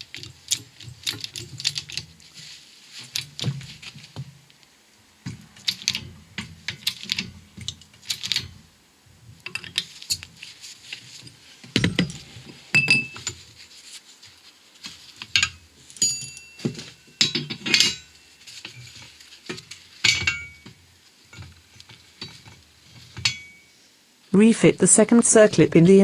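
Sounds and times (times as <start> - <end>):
metal tools clinking and knocking: 0.0 - 2.1, 9.5 - 10.5, 11.2 - 13.5, 15.2 - 23.7.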